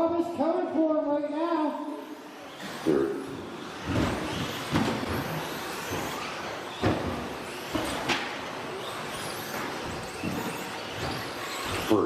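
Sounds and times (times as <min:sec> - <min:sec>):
high electric motor whines: 0:01.7 - 0:12.0
sharp knocks: 0:03.8 - 0:08.4.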